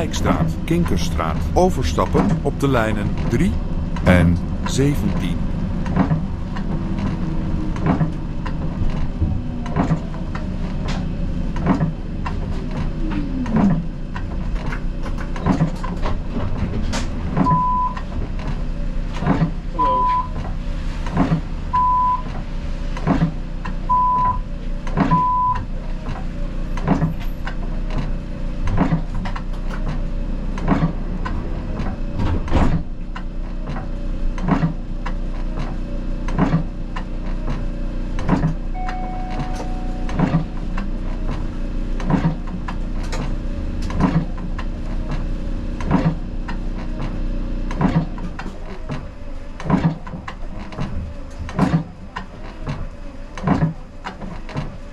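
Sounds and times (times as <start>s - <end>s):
tram motor hum: 0.0s - 54.9s
longer beep: 19.8s - 20.3s, 38.7s - 40.8s
short high beeps: 19.8s - 20.3s, 38.8s - 40.7s.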